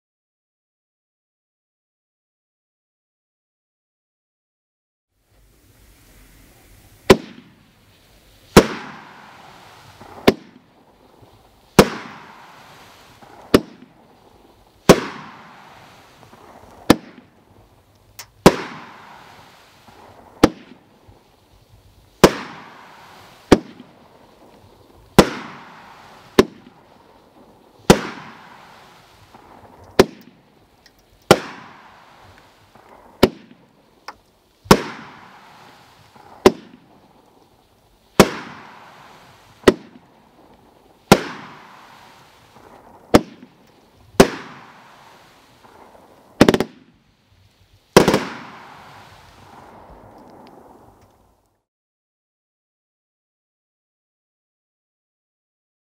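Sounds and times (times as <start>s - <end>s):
faint firework bursts: 5.2s - 51.7s
firework shots banging: 7.0s - 7.6s, 8.5s - 21.2s, 22.2s - 37.3s, 38.2s - 46.9s, 47.9s - 51.0s.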